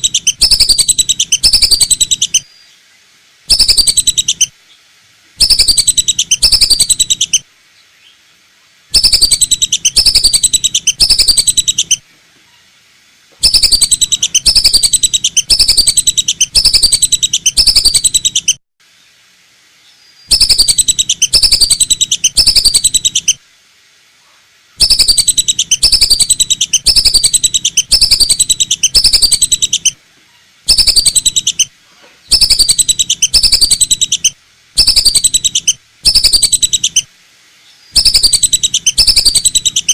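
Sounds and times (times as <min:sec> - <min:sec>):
duck whistling calls: 0:00.0 - 0:02.4, 0:03.5 - 0:04.5, 0:05.4 - 0:07.4, 0:09.0 - 0:12.0, 0:13.4 - 0:18.6, 0:20.3 - 0:23.4, 0:24.8 - 0:30.0, 0:30.7 - 0:31.7, 0:32.3 - 0:37.0, 0:38.0 - 0:39.9.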